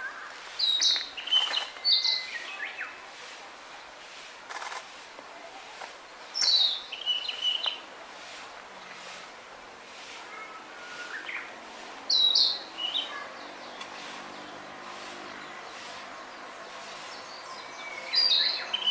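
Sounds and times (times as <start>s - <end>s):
steady outdoor hiss: 0.0s - 18.9s
bird singing whistled notes: 0.1s - 2.9s, 6.4s - 7.8s, 17.2s - 18.9s.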